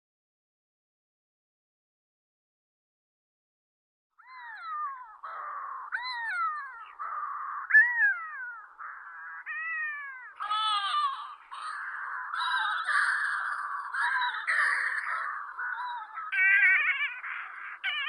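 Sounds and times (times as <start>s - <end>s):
petrel calling: 4.2s - 18.0s.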